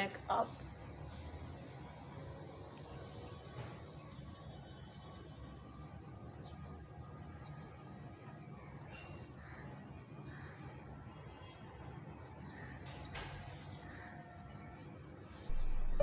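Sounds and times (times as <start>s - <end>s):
small bird chirping: 15.3s - 16.0s
low outdoor rumble: 15.5s - 16.0s.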